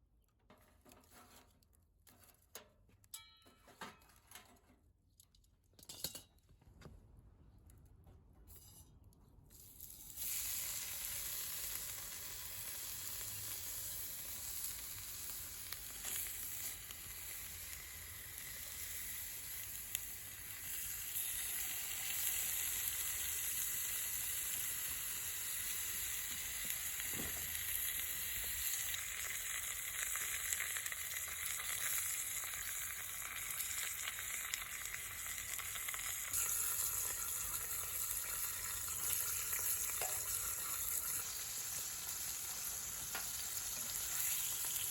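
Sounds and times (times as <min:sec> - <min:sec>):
food sizzling in a pan: 0:09.8 - 0:44.9.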